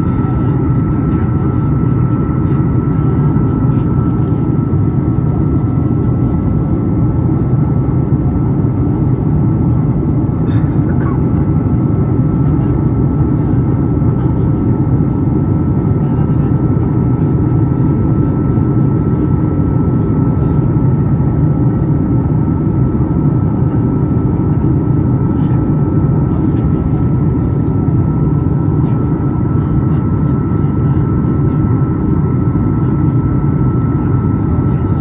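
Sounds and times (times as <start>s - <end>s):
airplane cabin engine roar: 0.0s - 35.0s.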